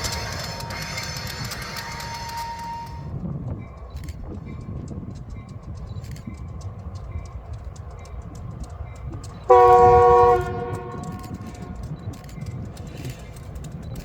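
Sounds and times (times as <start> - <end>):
train rumbling along rails: 0.0 - 14.0
locomotive air horn blast: 9.5 - 11.8.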